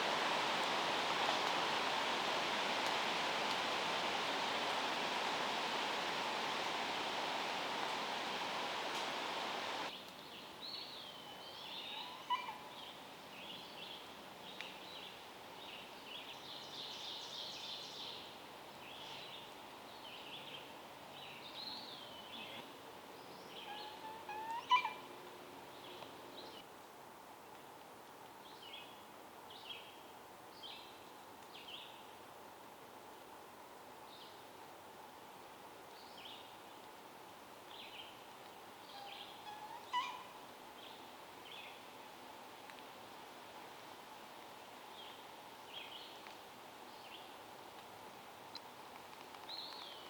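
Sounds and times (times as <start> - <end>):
steady hiss: 0.0 - 9.9
forest birds calling: 21.3 - 25.1, 38.8 - 41.8.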